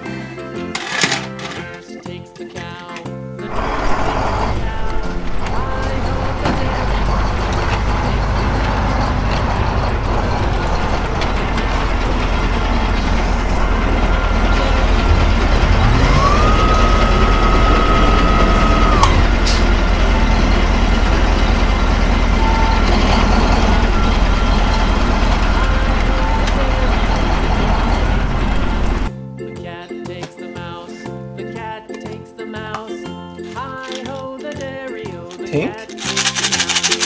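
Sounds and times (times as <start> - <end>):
truck engine rumbling: 3.4 - 29.1
hydraulic whine: 3.5 - 29.1.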